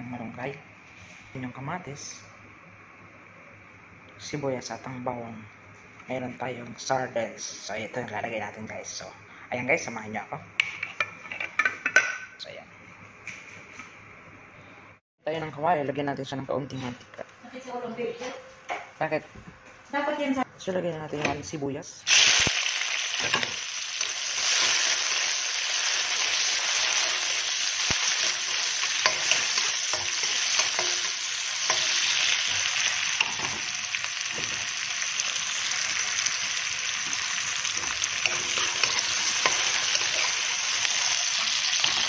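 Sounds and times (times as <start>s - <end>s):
onion and garlic sizzling in oil: 22.1s - 42.0s.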